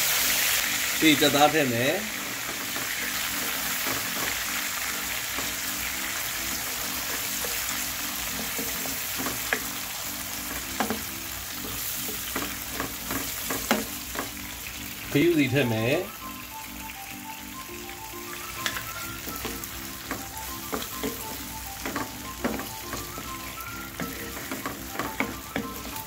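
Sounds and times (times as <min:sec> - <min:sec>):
chicken sizzling in hot oil: 0:00.0 - 0:26.0
wooden spatula knocking on pan: 0:08.3 - 0:09.7, 0:10.5 - 0:14.4, 0:18.6 - 0:26.0.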